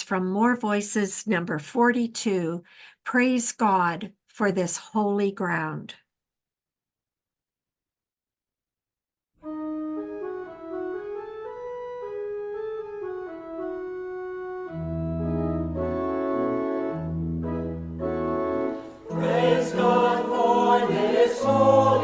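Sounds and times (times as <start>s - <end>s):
organ playing hymn: 9.4s - 22.0s.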